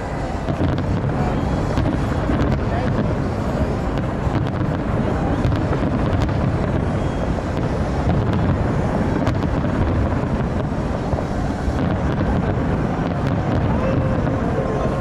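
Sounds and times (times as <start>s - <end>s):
fireworks crackling: 0.0s - 15.0s
fireworks rumbling bursts: 0.0s - 15.0s
wind buffeting microphone: 0.0s - 15.0s.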